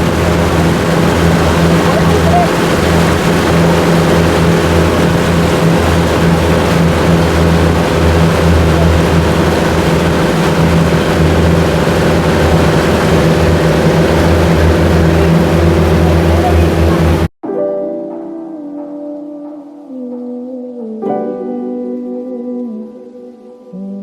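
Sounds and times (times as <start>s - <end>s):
motorboat engine droning: 0.0s - 17.3s.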